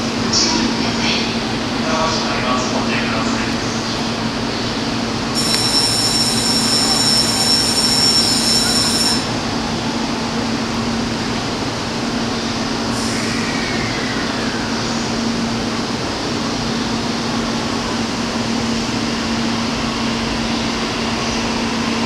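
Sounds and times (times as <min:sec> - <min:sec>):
electric train humming: 0:00.0 - 0:22.0
high electronic tone: 0:05.4 - 0:09.3.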